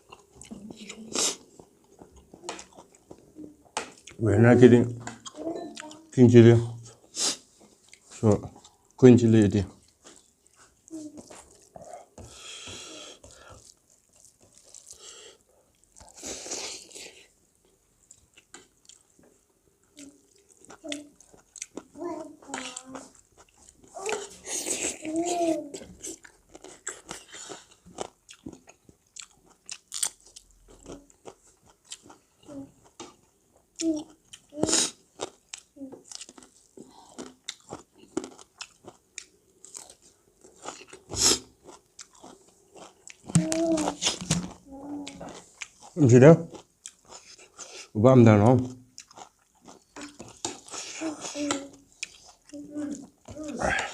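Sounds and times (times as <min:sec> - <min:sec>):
person biting and chewing food: 0:09.8 - 0:17.3, 0:26.0 - 0:32.2, 0:33.0 - 0:47.9, 0:48.9 - 0:53.9.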